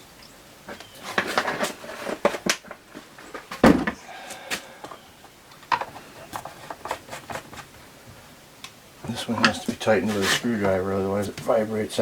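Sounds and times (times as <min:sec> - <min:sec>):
heavy thump: 0:03.6 - 0:04.0.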